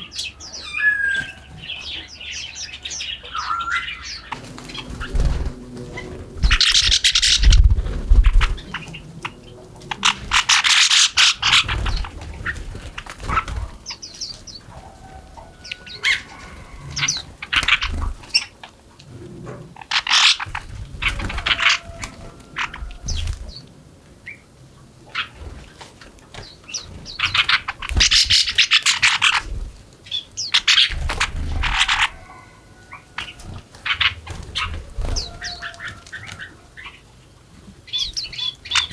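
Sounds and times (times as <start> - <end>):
small birds chirping: 0.0 - 38.9
wings fluttering and thumps: 4.3 - 9.0, 9.8 - 13.9, 20.4 - 23.5, 25.4 - 29.8, 30.6 - 32.2, 33.4 - 36.4.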